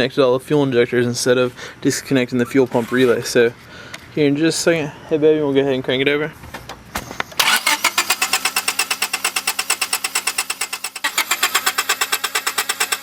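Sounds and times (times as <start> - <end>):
engine cranking without starting: 7.4 - 13.0.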